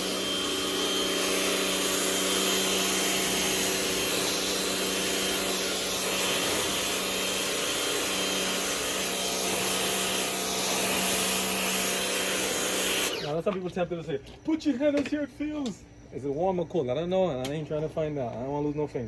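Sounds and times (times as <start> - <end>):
pressure washer motor humming: 0.0 - 13.5.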